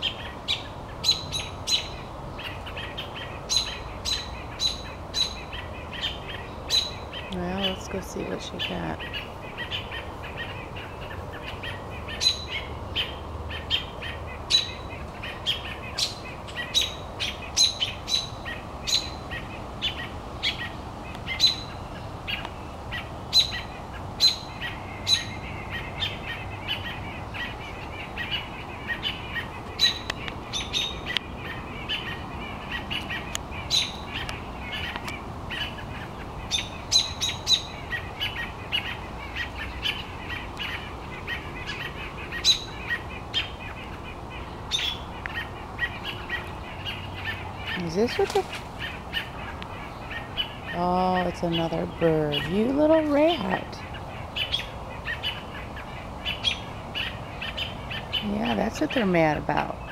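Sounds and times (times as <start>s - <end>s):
birds chattering: 0.0s - 59.9s
small birds alarm chips: 0.0s - 59.9s.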